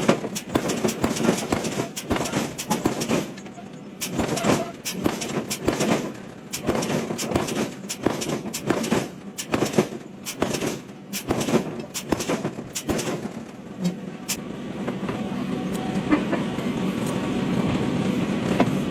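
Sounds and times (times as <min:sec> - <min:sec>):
metal impacts and clanks: 0:00.0 - 0:14.4.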